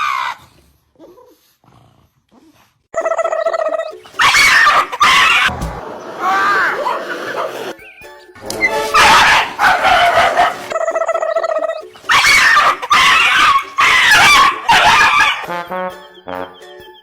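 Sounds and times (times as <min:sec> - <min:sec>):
dog whining: 0:03.0 - 0:05.5, 0:08.6 - 0:15.5
dog barking: 0:04.2 - 0:05.5, 0:08.7 - 0:10.8, 0:12.1 - 0:15.5.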